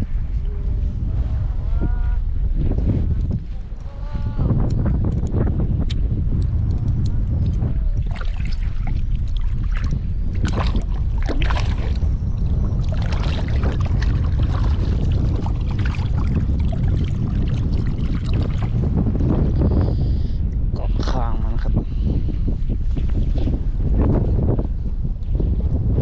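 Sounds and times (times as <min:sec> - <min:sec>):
wind buffeting microphone: 0:00.0 - 0:26.0
short splashes and clicks: 0:07.4 - 0:12.0.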